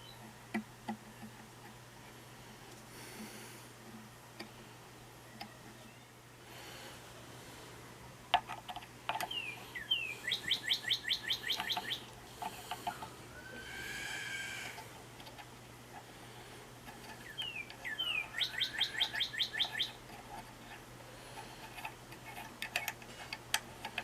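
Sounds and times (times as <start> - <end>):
small bird singing: 0.0 - 0.3, 9.2 - 12.1, 17.1 - 20.0.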